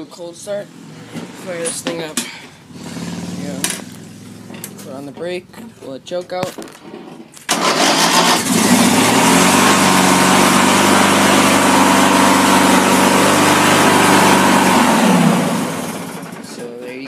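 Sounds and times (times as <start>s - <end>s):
starter cranking: 7.4s - 9.2s
lawn tractor engine running: 7.4s - 17.0s.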